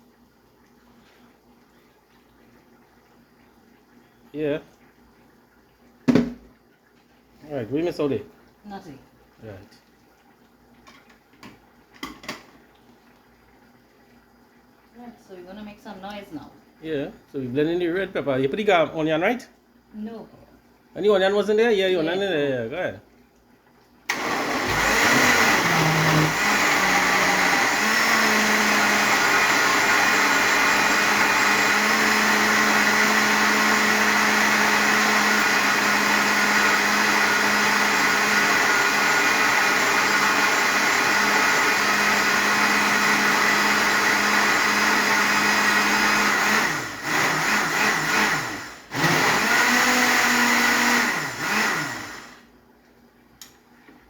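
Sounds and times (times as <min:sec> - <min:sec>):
electric blender running: 0:24.1 - 0:52.5.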